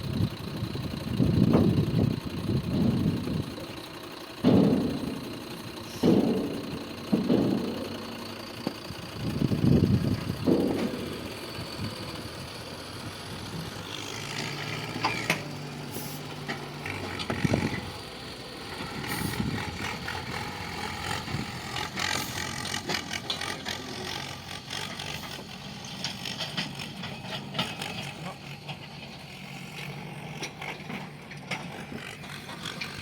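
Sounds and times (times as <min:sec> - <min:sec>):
diesel engine running: 0:00.0 - 0:33.0
metallic clanks and knocks: 0:03.8 - 0:12.0, 0:14.4 - 0:15.6, 0:19.8 - 0:33.0.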